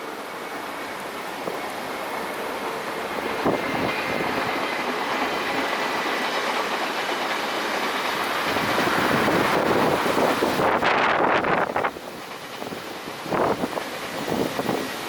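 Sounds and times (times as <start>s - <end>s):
train wheels rolling on track: 0.0s - 15.0s
wind on microphone: 3.2s - 5.8s, 8.5s - 15.0s.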